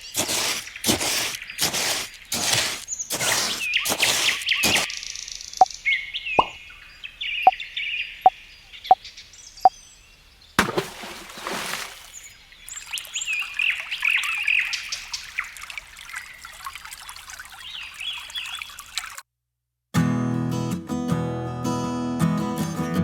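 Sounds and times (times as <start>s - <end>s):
water pouring and trickling: 0.0s - 4.9s, 10.6s - 19.2s
birds chirping: 0.0s - 16.6s, 17.6s - 18.9s
water drops plopping into pool: 10.6s - 12.1s.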